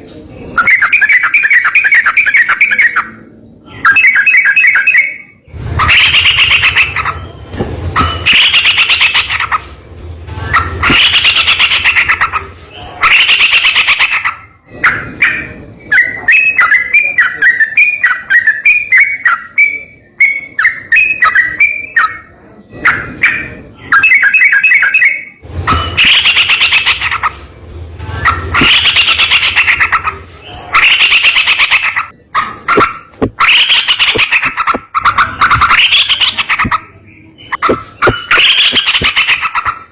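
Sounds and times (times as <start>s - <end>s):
bird singing: 0.6s - 9.7s, 28.2s - 39.9s.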